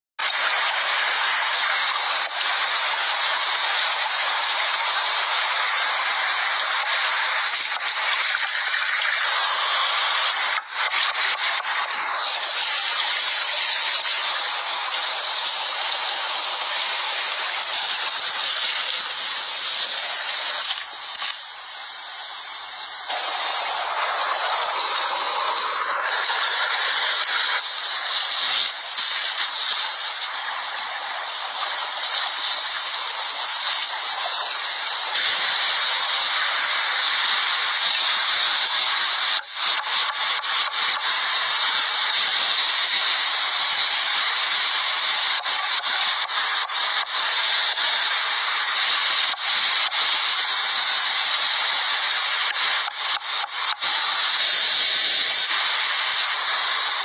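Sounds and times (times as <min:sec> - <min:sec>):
steady hiss: 0:00.2 - 0:57.0.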